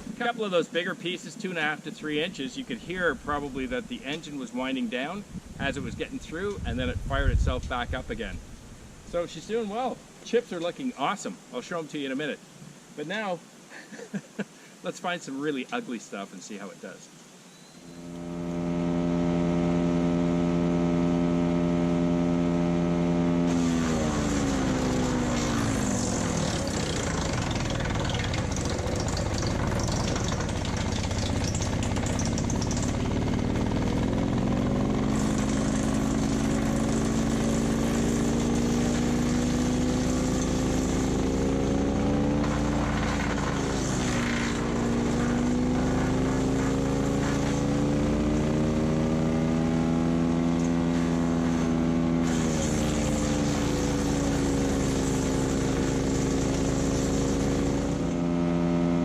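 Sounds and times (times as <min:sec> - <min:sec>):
branches grinding through chipper: 0:18.0 - 0:59.0
wood chipper engine: 0:18.0 - 0:59.0.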